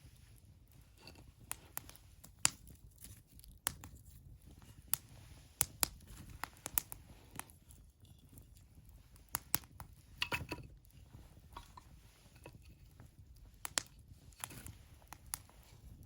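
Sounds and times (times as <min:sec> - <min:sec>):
wood fire crackling and popping: 0:00.0 - 0:16.0
steady rush of flame: 0:04.4 - 0:07.9, 0:10.9 - 0:16.0.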